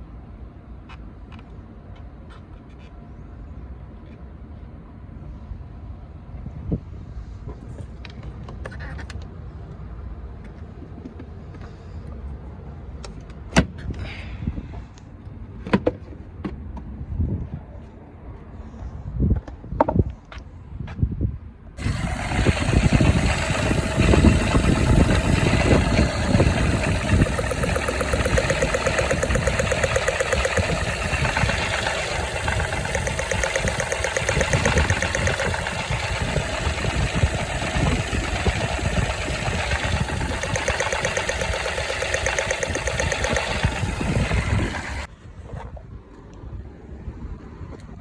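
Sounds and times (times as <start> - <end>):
car engine idling: 21.8 - 45.1.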